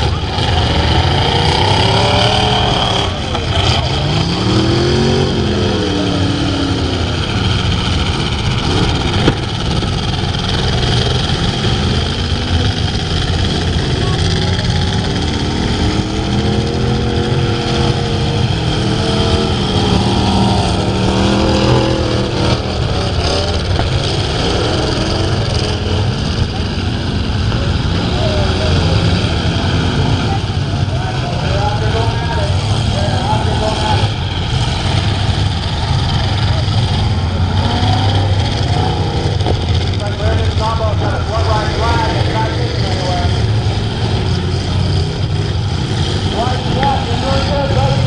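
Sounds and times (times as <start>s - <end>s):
truck engines revving: 0.0s - 48.0s.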